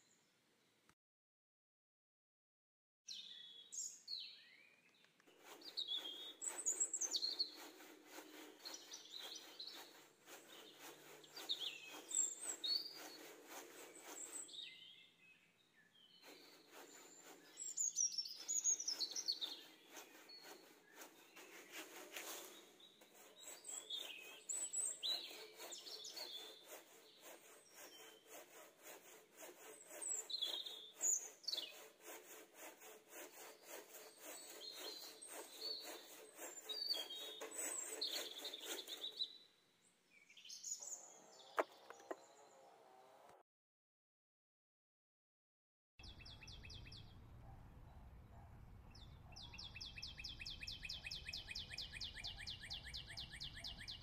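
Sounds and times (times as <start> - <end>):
birds chirping and calling: 3.1 - 32.1, 33.0 - 39.4, 40.2 - 42.6, 49.0 - 54.0.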